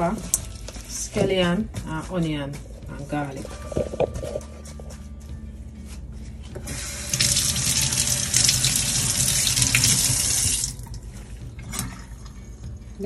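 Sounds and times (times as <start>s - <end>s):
faucet water splashing in sink: 6.7s - 11.0s.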